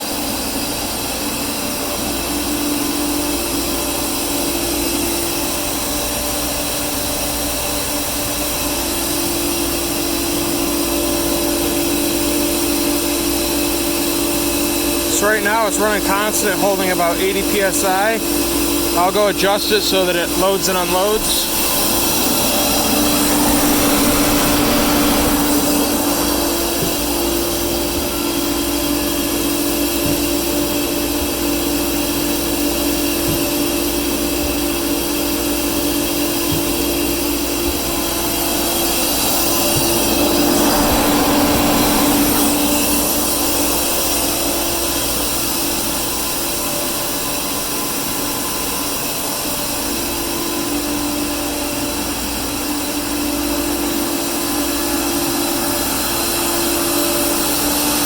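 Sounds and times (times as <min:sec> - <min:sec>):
air compressor humming: 0:00.0 - 0:58.0.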